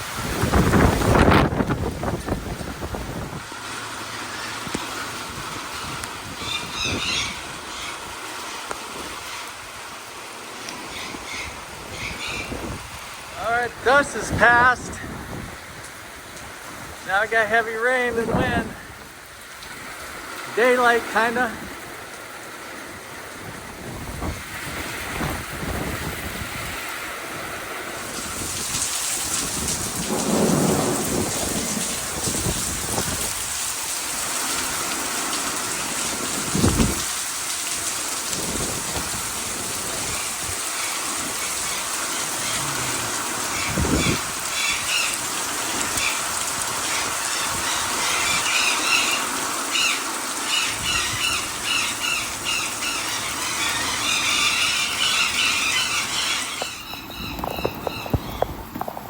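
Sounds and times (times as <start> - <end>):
heavy rain and wind: 0.0 - 59.0
low rumbles of thunder: 28.4 - 33.7.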